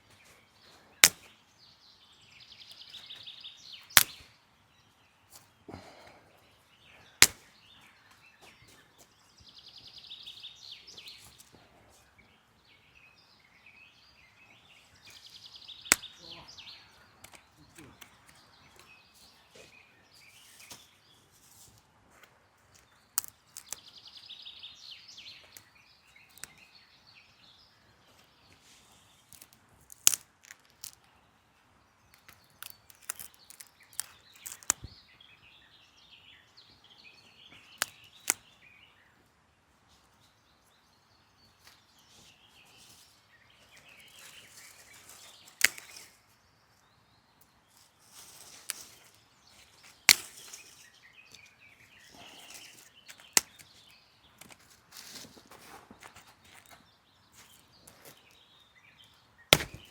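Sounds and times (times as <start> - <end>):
birds chirping: 0.0 - 59.9
firewood clacking and snapping: 1.0 - 1.3, 3.9 - 4.3, 7.2 - 7.5, 15.8 - 16.2, 22.8 - 23.9, 26.3 - 26.6, 29.3 - 31.1, 32.1 - 34.9, 37.6 - 38.5, 44.1 - 46.2, 50.0 - 51.5, 52.4 - 56.9, 59.5 - 59.9.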